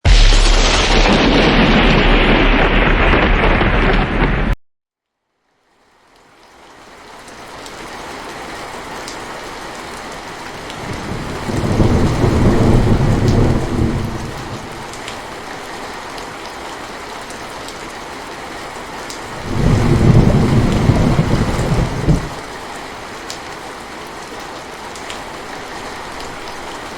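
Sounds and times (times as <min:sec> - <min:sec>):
low rumble of thunder: 0:00.1 - 0:04.6, 0:10.6 - 0:15.2, 0:19.3 - 0:22.4
steady rain: 0:05.3 - 0:26.9.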